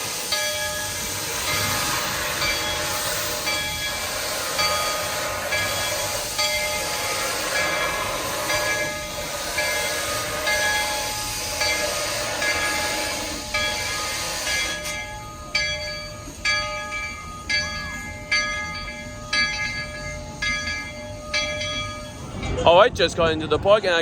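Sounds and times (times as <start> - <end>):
hiss of steam: 0.0 - 16.5
steam locomotive bell ringing: 0.0 - 24.0.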